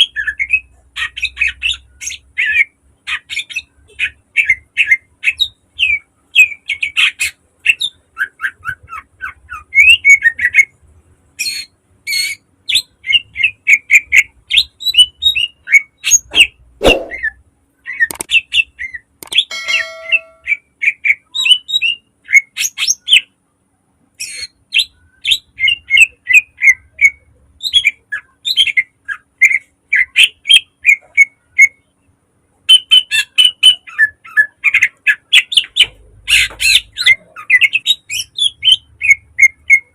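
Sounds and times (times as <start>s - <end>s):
bird singing sharp chirps: 14.8s - 22.0s.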